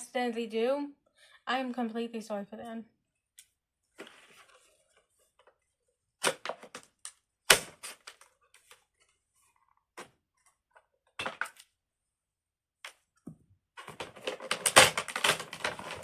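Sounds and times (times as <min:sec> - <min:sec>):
scissors cutting plastic packaging: 0:13.8 - 0:16.0.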